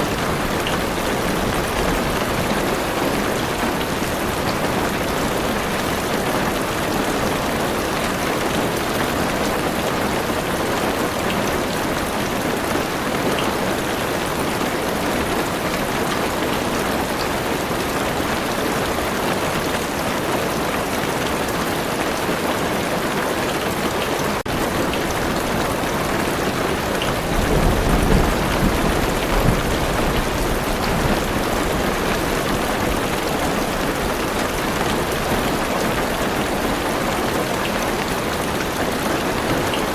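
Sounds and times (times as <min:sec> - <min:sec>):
heavy rain on car roof: 0:00.0 - 0:39.9
low roll of thunder: 0:24.6 - 0:33.1.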